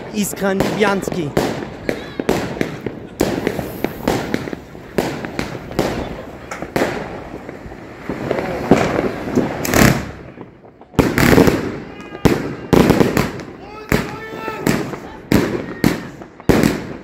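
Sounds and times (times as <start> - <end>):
fireworks bangs: 0.0 - 17.0
fireworks crackling: 0.0 - 17.0.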